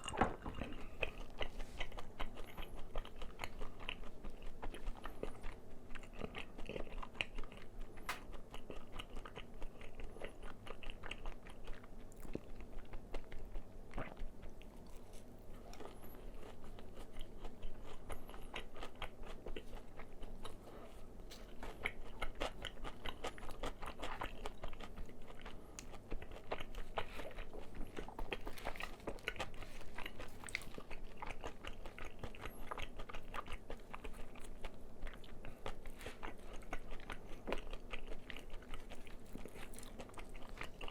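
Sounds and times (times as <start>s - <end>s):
chewing crispy fried chicken: 0.0s - 40.9s.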